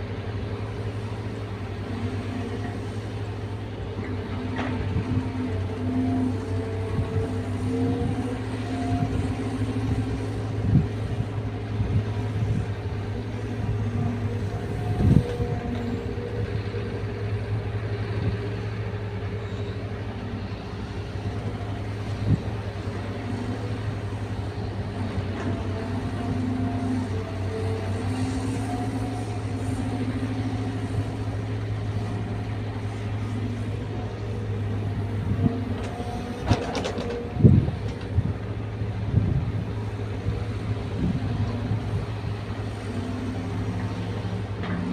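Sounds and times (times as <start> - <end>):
excavator diesel engine running: 0.0 - 44.9
hydraulic whine: 4.5 - 16.7.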